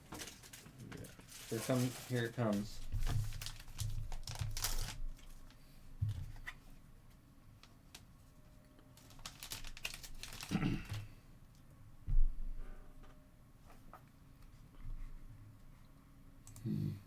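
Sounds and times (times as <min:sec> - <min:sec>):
cards and wrappers crinkling: 0:00.0 - 0:05.6, 0:08.9 - 0:11.1.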